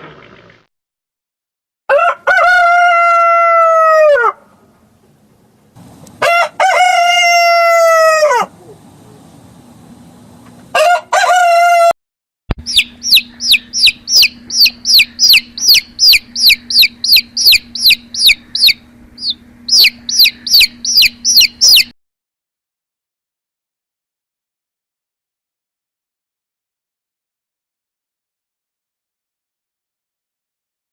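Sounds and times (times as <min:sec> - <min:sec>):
rooster crowing: 0:01.9 - 0:04.5, 0:06.2 - 0:08.6, 0:10.7 - 0:12.0.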